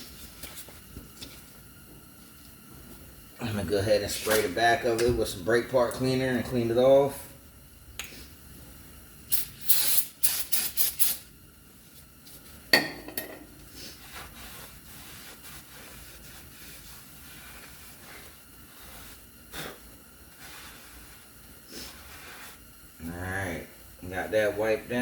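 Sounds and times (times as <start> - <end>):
aerosol spray hissing: 9.3 - 11.3, 13.8 - 22.7.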